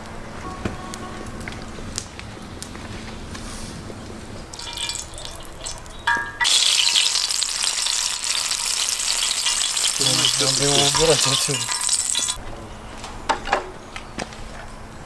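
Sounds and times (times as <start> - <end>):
food sizzling in hot fat: 4.5 - 12.4.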